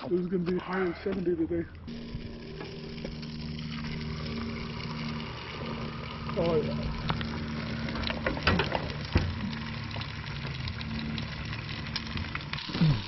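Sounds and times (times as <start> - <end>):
low steady hum: 0.0 - 13.0
fish sizzling on a grill: 7.4 - 13.0.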